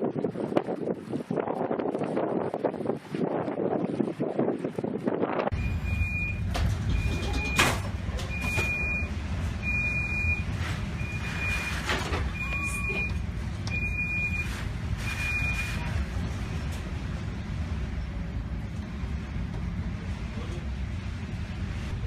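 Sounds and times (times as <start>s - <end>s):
electronic alarm beeping: 5.5s - 15.8s.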